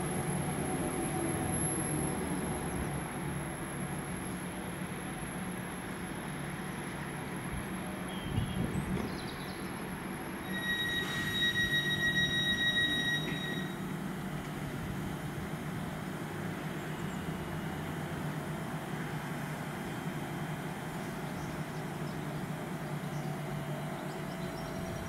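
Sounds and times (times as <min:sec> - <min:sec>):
low train hum: 0:00.0 - 0:25.0
train brakes squealing: 0:09.6 - 0:14.1.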